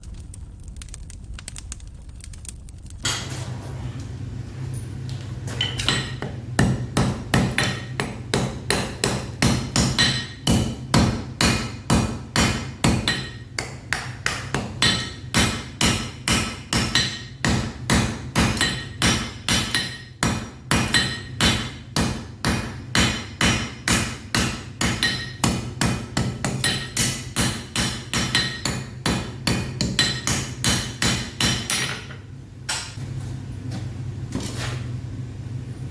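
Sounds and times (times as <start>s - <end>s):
hammer striking metal on anvil: 5.5s - 33.0s.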